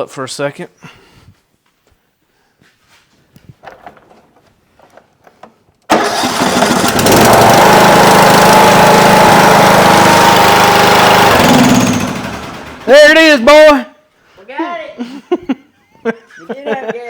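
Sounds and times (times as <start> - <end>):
riding mower engine running: 5.9 - 13.2.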